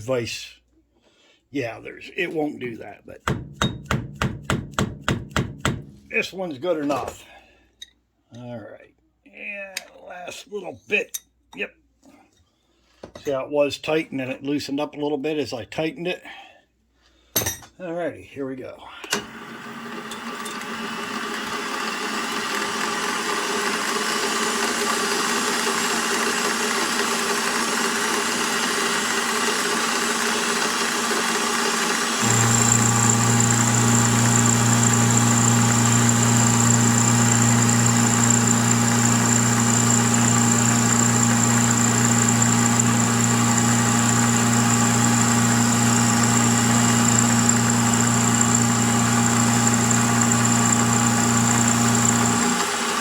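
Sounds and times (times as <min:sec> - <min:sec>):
milling machine motor running: 0:19.2 - 0:53.0
machine drive low hum and whine: 0:32.2 - 0:44.3.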